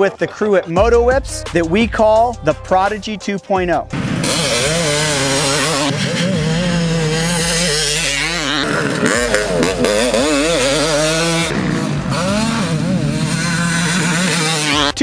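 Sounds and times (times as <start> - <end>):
dirt bike engine revving: 3.9 - 15.0.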